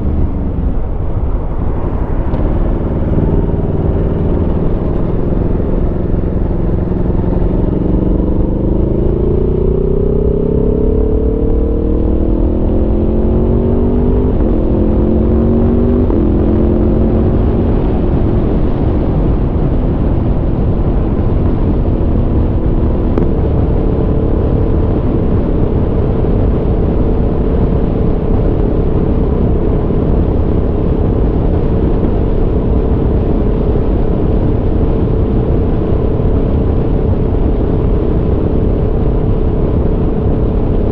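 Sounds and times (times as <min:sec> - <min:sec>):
motorcycle engine revving: 0:00.0 - 0:30.7
wind and road noise: 0:00.0 - 0:40.9.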